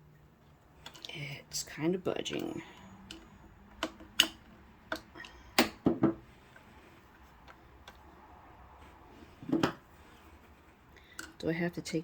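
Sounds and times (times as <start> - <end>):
metal parts clicking and tapping: 0.8 - 1.2, 2.1 - 5.8.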